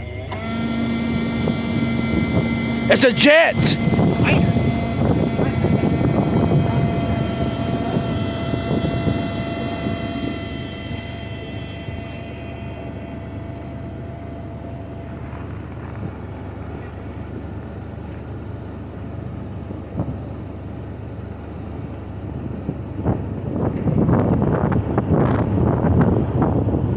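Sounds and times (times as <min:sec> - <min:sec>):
engine low rumble: 0:00.0 - 0:03.1, 0:03.7 - 0:26.9
high whine: 0:00.2 - 0:16.2
wind on microphone: 0:03.8 - 0:11.0, 0:22.7 - 0:26.9.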